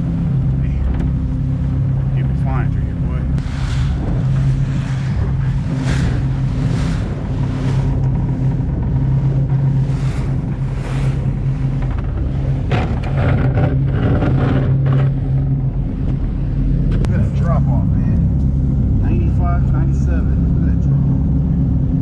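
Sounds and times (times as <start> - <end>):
rushing water: 0.0 - 16.4
boat engine running: 0.0 - 22.0
wind gusts: 0.0 - 22.0.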